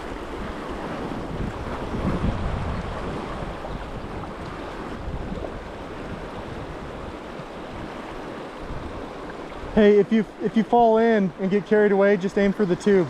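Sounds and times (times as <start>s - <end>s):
wind rumbling on microphone: 0.0s - 10.4s
fast river current rushing: 0.0s - 13.0s.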